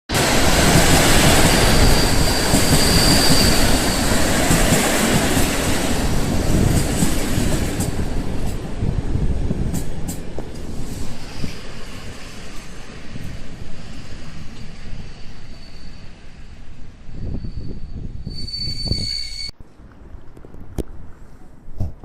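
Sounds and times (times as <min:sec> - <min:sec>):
train wheels on rails: 0:00.1 - 0:19.6
high wheel squeal: 0:01.4 - 0:04.6, 0:13.9 - 0:19.5.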